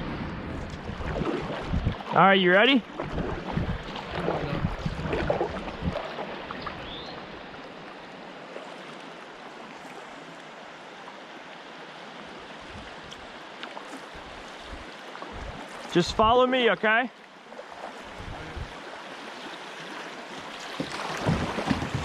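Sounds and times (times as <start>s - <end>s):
river water rushing over rocks: 16.6s - 22.0s.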